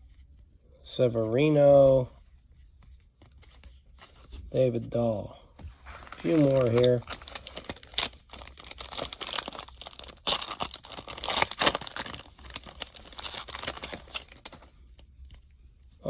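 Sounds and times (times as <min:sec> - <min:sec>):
trading cards crinkling and rustling: 0:03.0 - 0:15.5.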